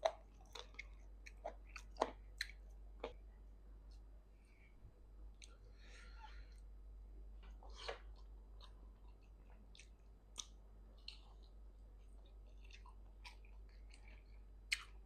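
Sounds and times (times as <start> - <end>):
person chewing: 0.0 - 3.2, 7.5 - 15.0.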